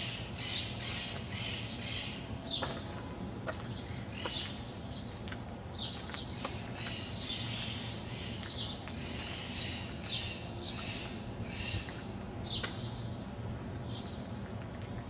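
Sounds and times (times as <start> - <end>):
small birds chirping: 3.5 - 13.1.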